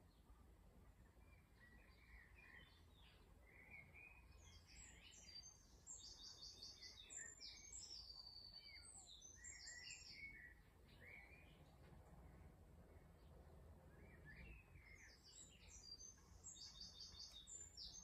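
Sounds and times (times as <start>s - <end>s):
songbirds singing and chirping: 0.0s - 18.0s
low background rumble: 10.6s - 16.6s.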